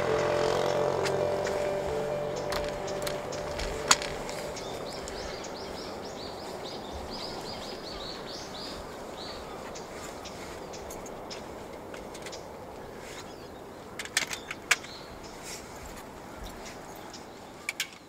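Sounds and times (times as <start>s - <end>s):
diesel railcar drone: 0.0s - 9.0s
rural background hiss: 0.0s - 18.0s.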